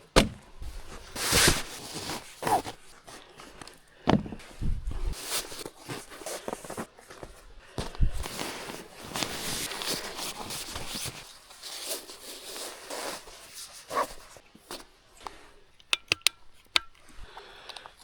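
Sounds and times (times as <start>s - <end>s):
camping gear rustling and scraping: 0.0s - 15.8s.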